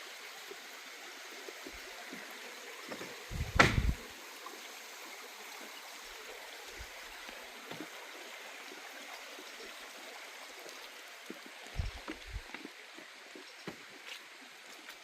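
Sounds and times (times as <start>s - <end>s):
stream trickling: 0.0s - 15.0s
soft low thuds: 3.3s - 4.0s, 11.8s - 12.5s.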